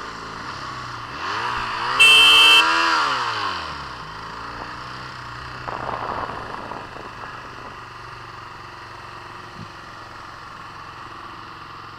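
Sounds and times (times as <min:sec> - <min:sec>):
motorcycle engine idling: 0:03.9 - 0:11.9
rush of noise: 0:05.5 - 0:08.3.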